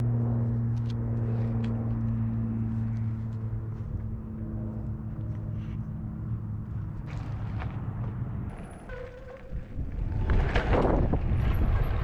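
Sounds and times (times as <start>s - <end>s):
wind on microphone: 9.4s - 12.0s.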